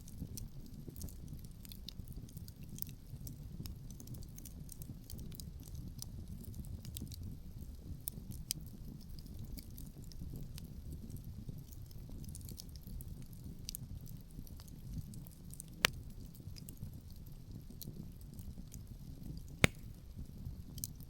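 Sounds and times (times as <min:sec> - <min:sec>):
fire pops and snaps: 0:19.6 - 0:20.1
wood fire crackling: 0:19.6 - 0:20.1.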